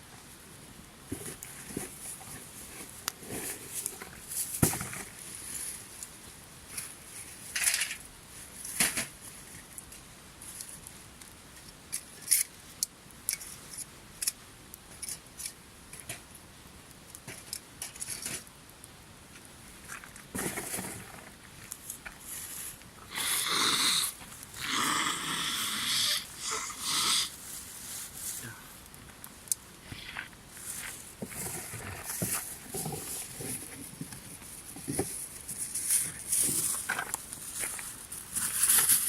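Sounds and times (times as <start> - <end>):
rustling: 1.1 - 11.0, 27.3 - 39.0.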